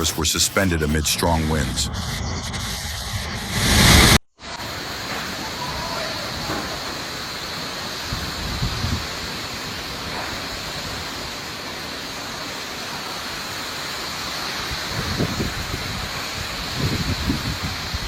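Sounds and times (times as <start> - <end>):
wind gusts buffeting microphone: 8.0 - 9.3, 14.7 - 18.0
strong storm wind blowing: 8.0 - 11.2, 14.6 - 18.0.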